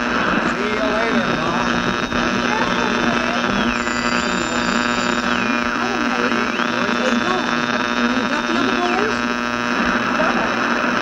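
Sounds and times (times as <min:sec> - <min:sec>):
faint wavering sounds: 0:00.0 - 0:10.6
electrical hum and buzz: 0:00.0 - 0:11.0
high whistling tone: 0:00.9 - 0:07.7.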